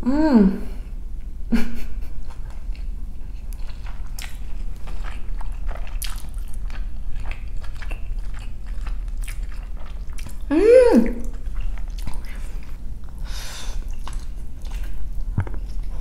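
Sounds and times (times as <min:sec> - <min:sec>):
person humming mmm: 0:00.0 - 0:00.8, 0:10.5 - 0:11.4
chewing noodles: 0:02.2 - 0:16.0.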